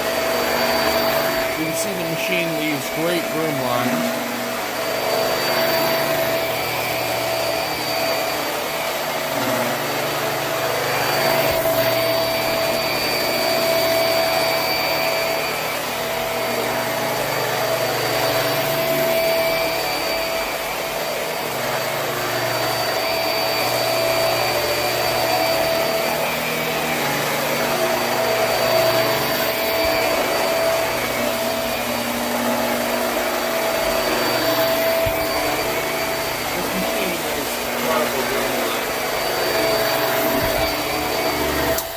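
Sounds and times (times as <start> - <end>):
vacuum cleaner on carpet: 0.0 - 41.9.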